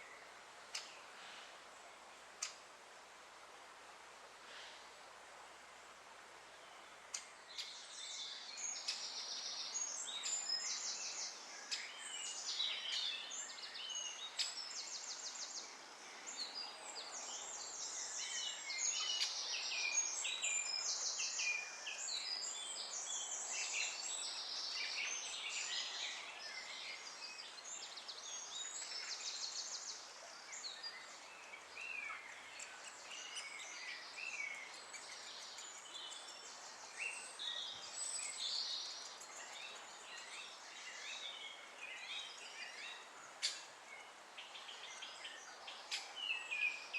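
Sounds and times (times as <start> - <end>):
bird chirps: 7.1 - 15.6.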